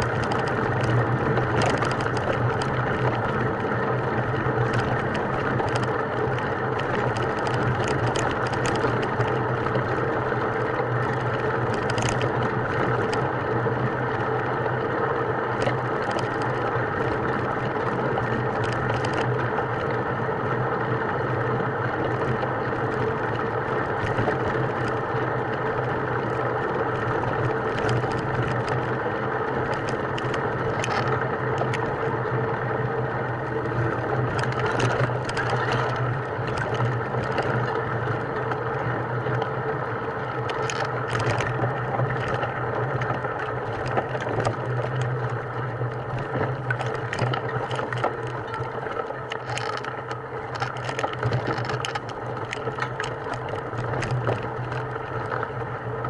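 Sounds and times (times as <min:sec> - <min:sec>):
clicks and rattles: 0:00.0 - 0:03.7, 0:04.6 - 0:09.9, 0:11.0 - 0:13.2, 0:15.6 - 0:16.6, 0:17.8 - 0:20.0, 0:27.0 - 0:28.9, 0:29.7 - 0:31.9, 0:33.8 - 0:37.8, 0:40.4 - 0:55.6
motor running steadily: 0:00.0 - 0:56.0.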